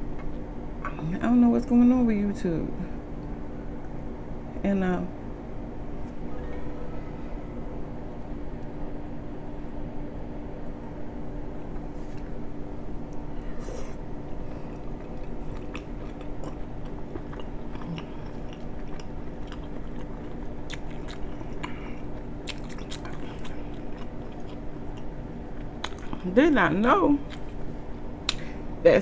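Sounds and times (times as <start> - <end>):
steady low hum: 0.0 - 29.0
person chewing: 13.1 - 26.3, 27.2 - 27.6.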